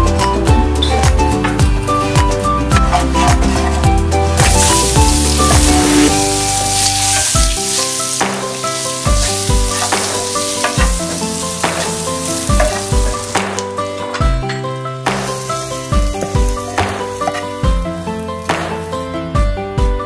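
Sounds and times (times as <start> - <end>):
background music with steady beat: 0.0 - 20.0
eggs sizzling in hot oil: 4.3 - 13.6, 15.0 - 19.2.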